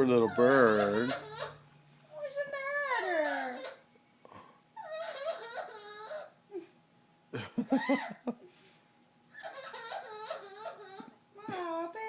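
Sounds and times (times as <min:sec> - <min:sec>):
parrot mimicking crying: 0:00.0 - 0:01.7, 0:02.6 - 0:03.9, 0:04.8 - 0:06.4, 0:07.7 - 0:08.2, 0:09.3 - 0:11.8.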